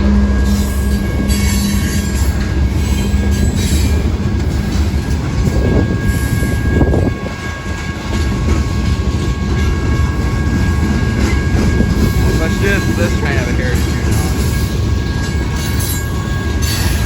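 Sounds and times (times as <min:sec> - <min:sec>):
high wheel squeal: 0:00.0 - 0:04.1, 0:10.0 - 0:17.0
train wheels rumbling on rail: 0:00.0 - 0:17.0.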